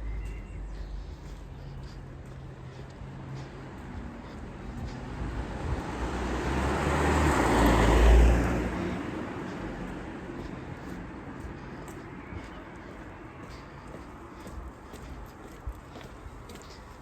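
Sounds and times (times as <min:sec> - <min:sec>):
car passing by: 0:03.1 - 0:12.8.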